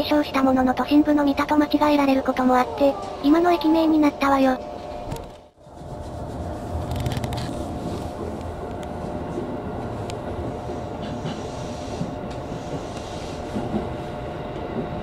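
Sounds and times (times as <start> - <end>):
constant hum: 0.0 - 15.0
wheels rumbling on rail: 4.5 - 15.0.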